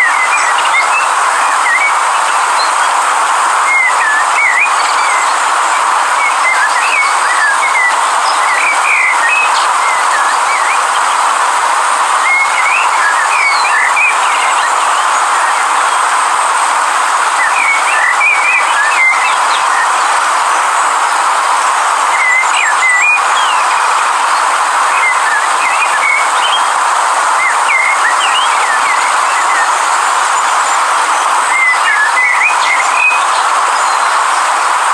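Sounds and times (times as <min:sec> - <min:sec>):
river rushing: 0:00.0 - 0:34.9
bird chirps: 0:27.4 - 0:30.8, 0:31.5 - 0:34.1.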